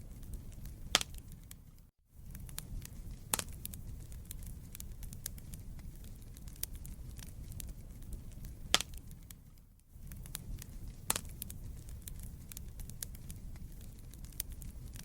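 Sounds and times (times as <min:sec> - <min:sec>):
fire rumbling and crackling: 0:00.0 - 0:15.0
sharp wood pops: 0:00.9 - 0:01.2, 0:03.3 - 0:03.6, 0:08.7 - 0:09.0, 0:11.1 - 0:11.4.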